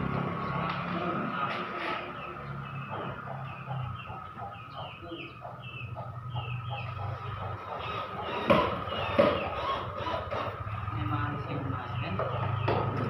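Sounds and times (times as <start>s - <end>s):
bird chirping rapidly: 2.2s - 13.0s.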